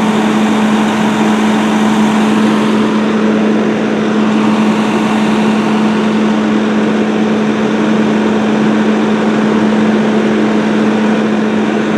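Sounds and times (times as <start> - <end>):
diesel engine running: 0.0 - 11.9.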